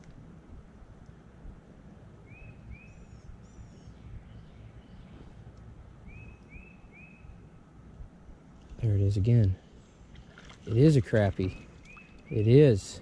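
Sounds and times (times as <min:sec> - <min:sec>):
low background rumble: 0:00.0 - 0:13.0
birds chirping: 0:02.2 - 0:07.6, 0:08.6 - 0:13.0.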